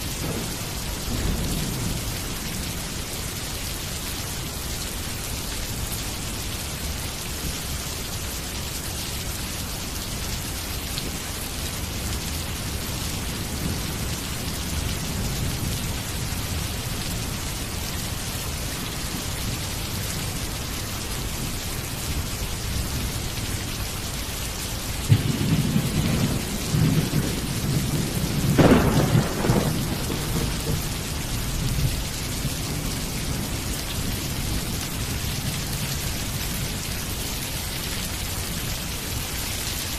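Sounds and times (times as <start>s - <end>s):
steady rain falling: 0.0s - 39.9s
low thunder rumbling: 0.1s - 3.2s, 25.0s - 36.6s
thunderclap: 0.2s - 2.0s, 25.1s - 31.9s.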